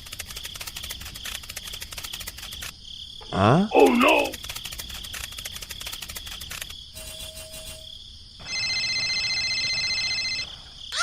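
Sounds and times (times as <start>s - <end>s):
chirping clicks: 0.0s - 2.8s, 4.2s - 6.8s.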